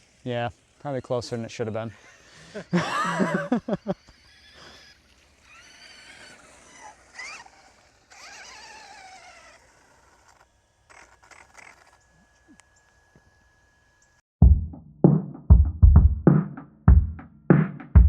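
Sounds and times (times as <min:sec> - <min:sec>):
electric motor whining: 0:00.0 - 0:14.2.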